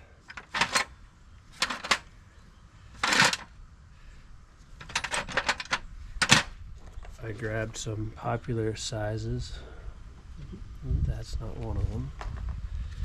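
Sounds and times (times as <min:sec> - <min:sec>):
metal tools clicking and clattering: 0:00.3 - 0:02.1, 0:02.9 - 0:03.5, 0:04.8 - 0:06.5
scraping rustle: 0:02.8 - 0:03.6.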